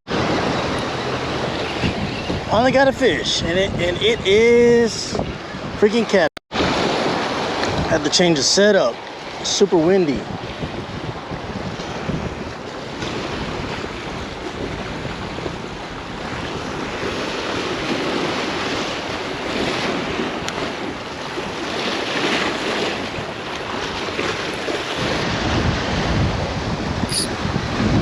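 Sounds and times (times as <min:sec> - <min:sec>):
choppy water splashing: 0:00.1 - 0:03.0, 0:06.5 - 0:28.0
strong wind on microphone: 0:00.1 - 0:08.1, 0:10.1 - 0:28.0.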